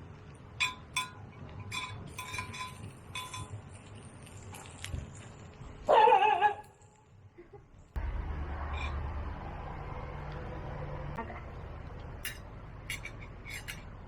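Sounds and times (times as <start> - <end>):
utensils clinking: 0.6 - 3.8, 12.2 - 14.0.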